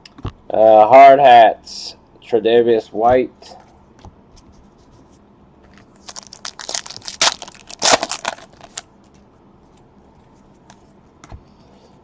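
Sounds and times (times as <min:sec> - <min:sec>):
foil wrapper crinkling: 0:06.0 - 0:08.9.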